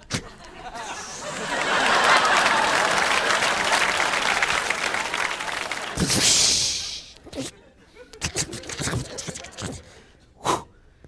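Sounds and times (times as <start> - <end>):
audience applauding: 0.8 - 7.1.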